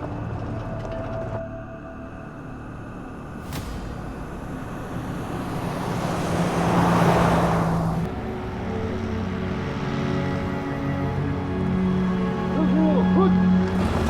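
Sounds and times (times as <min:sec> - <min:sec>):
background music: 0:00.0 - 0:14.0
vehicle passing by: 0:03.4 - 0:14.0.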